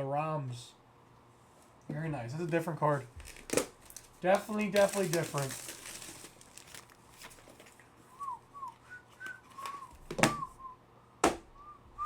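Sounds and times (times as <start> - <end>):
person whistling a tune: 8.1 - 10.8, 11.6 - 12.0.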